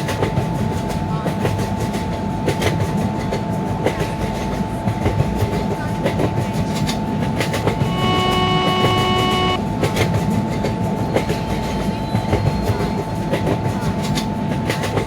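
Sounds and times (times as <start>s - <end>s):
train rumble: 0.0s - 15.0s
steady pitched tone: 7.8s - 9.6s.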